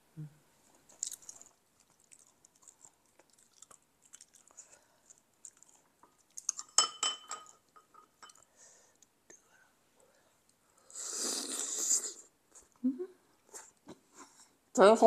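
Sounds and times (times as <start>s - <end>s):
person chewing food: 0.7s - 6.8s
chopsticks clinking on bowl: 6.5s - 8.4s.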